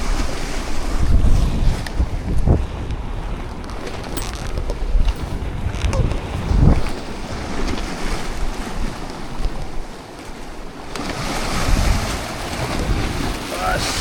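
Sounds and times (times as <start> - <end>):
sea waves washing on rocks: 0.0 - 14.0
wind buffeting microphone: 0.0 - 14.0.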